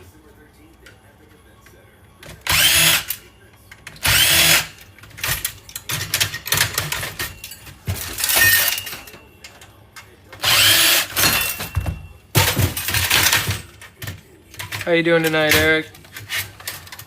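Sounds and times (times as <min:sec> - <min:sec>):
power drill bursts: 0:02.5 - 0:03.2, 0:04.0 - 0:04.7, 0:10.4 - 0:11.2
clatter of metal parts: 0:03.7 - 0:17.0.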